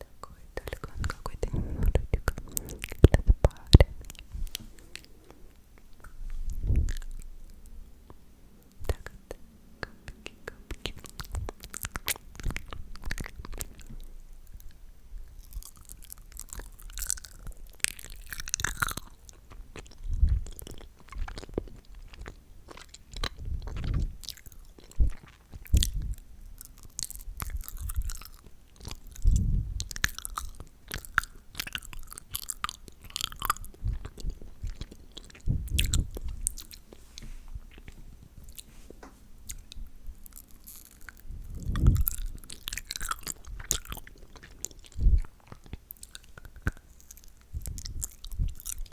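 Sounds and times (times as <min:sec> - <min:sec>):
wet lip smacking and licking: 0:00.2 - 0:07.3, 0:08.8 - 0:14.6, 0:15.4 - 0:36.9, 0:39.4 - 0:48.9
quick mouth clicks and pops: 0:00.3 - 0:04.7.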